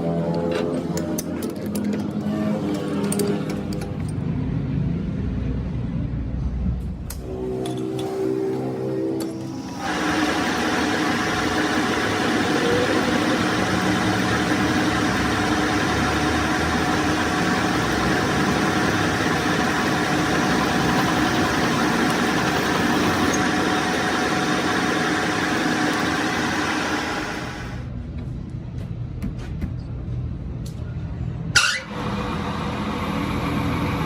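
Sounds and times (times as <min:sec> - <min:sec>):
metal lathe humming: 0:07.2 - 0:27.9.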